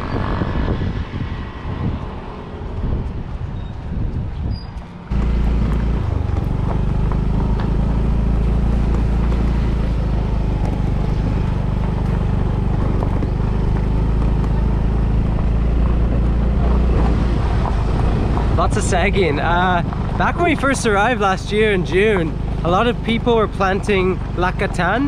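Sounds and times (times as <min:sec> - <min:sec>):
wind and road noise: 0:00.0 - 0:25.0
motorbike engine running: 0:05.1 - 0:25.0.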